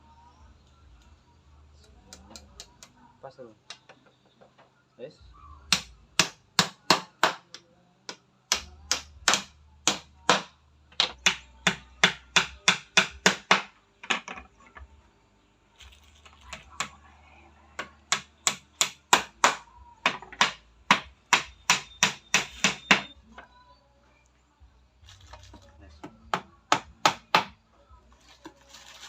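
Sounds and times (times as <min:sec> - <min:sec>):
hammer striking: 0:05.7 - 0:13.7, 0:17.8 - 0:23.2.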